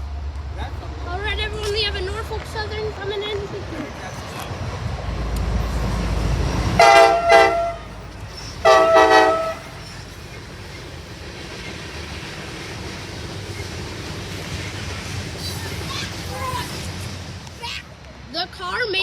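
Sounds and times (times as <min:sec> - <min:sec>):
locomotive engine rumble: 0:00.0 - 0:19.0
locomotive air horn blasts: 0:06.8 - 0:08.0, 0:08.6 - 0:09.8.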